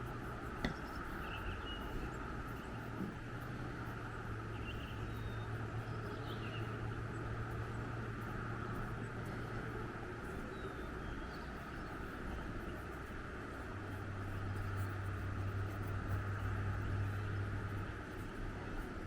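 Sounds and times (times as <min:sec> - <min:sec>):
faint bird chirps: 0:00.7 - 0:03.0, 0:04.5 - 0:07.8.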